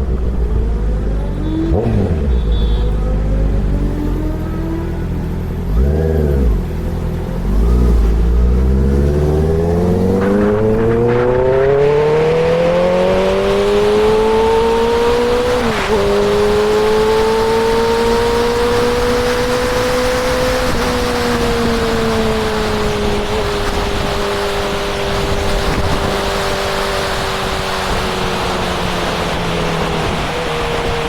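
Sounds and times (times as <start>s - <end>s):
motorcycle engine revving and accelerating: 0.0s - 31.0s
wind rushing: 8.8s - 17.2s.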